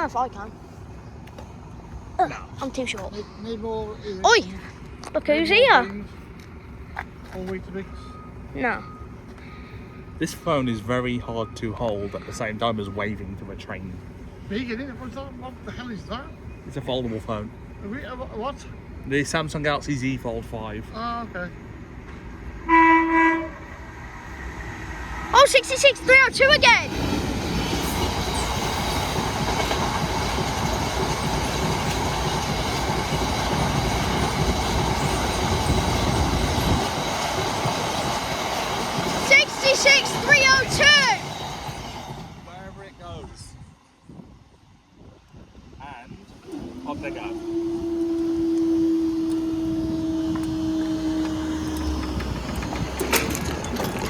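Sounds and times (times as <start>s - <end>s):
freight train rumbling past: 0.0s - 54.0s
crossing barrier mechanism whining: 5.1s - 43.2s, 46.2s - 54.0s
wheels clattering over rails: 23.6s - 43.1s, 46.3s - 54.0s.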